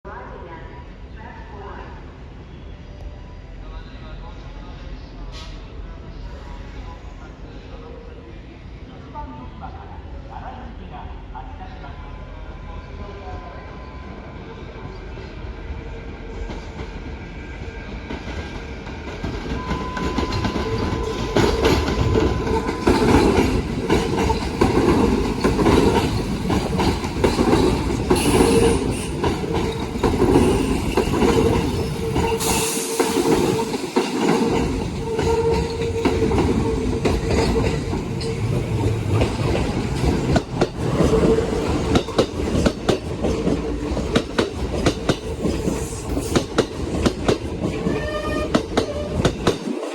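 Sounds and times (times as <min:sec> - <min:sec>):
train wheels clicking over rail joints: 0:18.2 - 0:49.9
high wheel squeals: 0:47.8 - 0:49.4.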